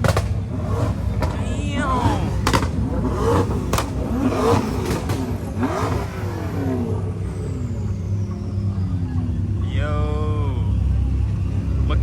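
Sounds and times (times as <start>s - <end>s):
sharp cracks: 0.0s - 6.5s
car engine revving: 0.0s - 12.0s
engines idling: 0.0s - 12.0s.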